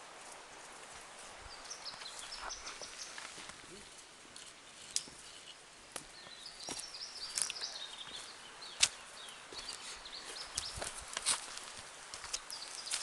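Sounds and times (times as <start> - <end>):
footsteps on forest trail: 0.0 - 13.0
bird chirping: 1.5 - 3.9, 4.6 - 11.0, 12.4 - 13.0
twigs snapping: 8.8 - 9.0, 10.6 - 13.0.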